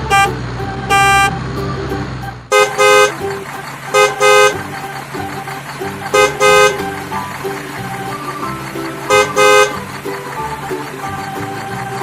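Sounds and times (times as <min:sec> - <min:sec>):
vehicle horn honking: 0:00.0 - 0:01.4, 0:02.5 - 0:03.3, 0:03.9 - 0:04.7, 0:06.1 - 0:07.0, 0:09.0 - 0:09.9
background music: 0:00.0 - 0:12.0.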